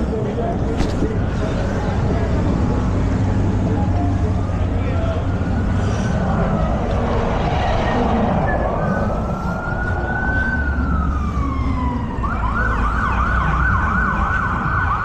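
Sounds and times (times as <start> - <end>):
traffic rumble: 0.0 - 15.0
emergency siren wailing: 3.6 - 15.0.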